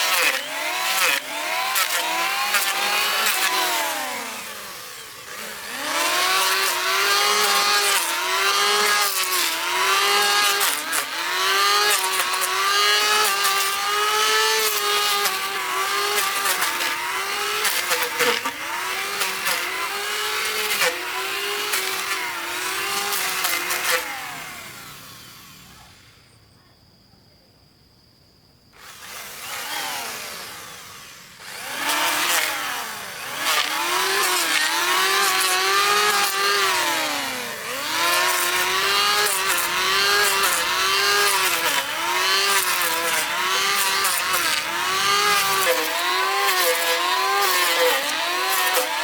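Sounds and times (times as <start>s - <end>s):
power tool motor under load: 0.0s - 26.2s, 28.8s - 49.0s.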